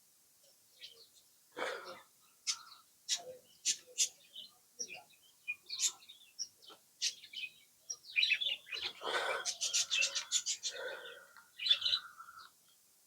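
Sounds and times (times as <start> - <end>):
parrots chirping: 9.0 - 12.2.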